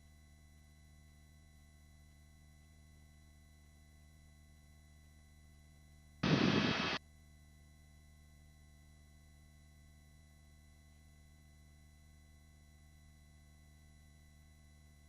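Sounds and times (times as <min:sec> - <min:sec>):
burst of microphone noise: 0:06.2 - 0:07.0
faint electrical hum: 0:06.2 - 0:07.0.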